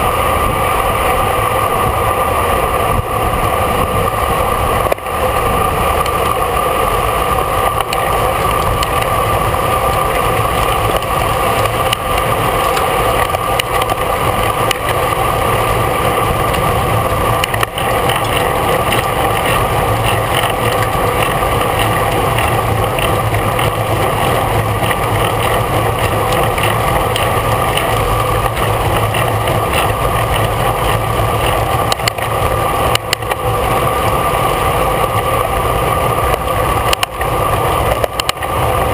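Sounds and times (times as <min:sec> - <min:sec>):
bicycle tyres on road: 0:00.0 - 0:38.9.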